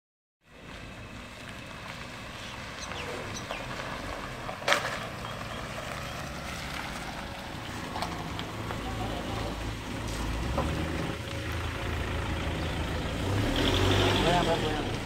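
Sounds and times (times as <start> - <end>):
vehicle engines rumbling: 0.4 - 15.0
bird chirps: 2.4 - 3.8, 5.0 - 6.4.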